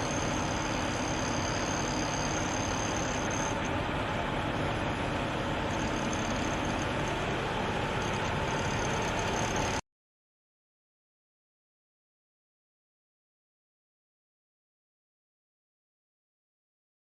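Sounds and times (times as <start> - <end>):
heavy vehicle engine and road noise: 0.0 - 9.8.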